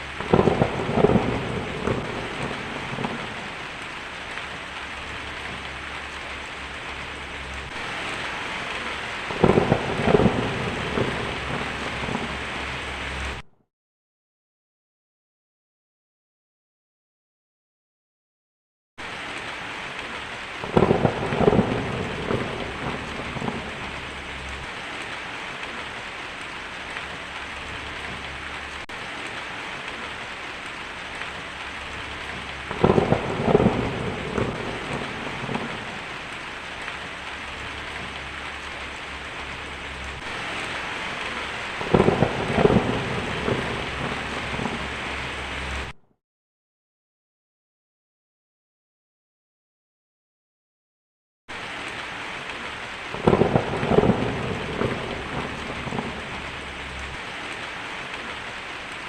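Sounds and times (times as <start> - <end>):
thunder cracking and rolling: 0.0 - 13.4, 20.6 - 26.0, 26.8 - 46.0, 53.1 - 57.2
steady rain: 0.0 - 13.5, 19.0 - 46.0, 51.5 - 59.0.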